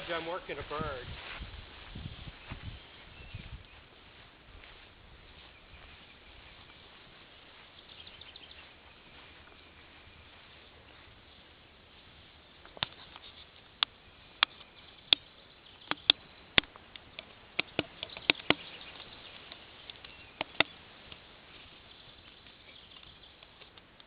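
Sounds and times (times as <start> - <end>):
sharp irregular clicks and snaps: 12.6 - 21.3, 21.9 - 24.0.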